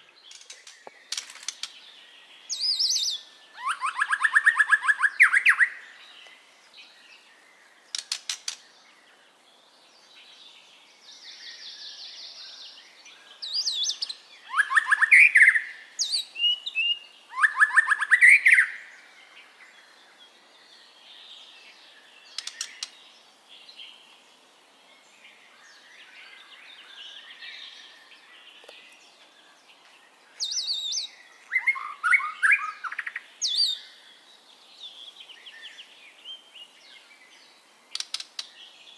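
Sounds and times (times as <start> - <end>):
bird singing rising phrases: 0.0 - 6.1, 25.4 - 37.5
fast clicking bird trills: 0.3 - 1.8, 7.9 - 8.7, 22.4 - 23.0, 37.9 - 38.5
bird twittering: 2.5 - 6.2, 13.4 - 19.0, 30.4 - 34.0.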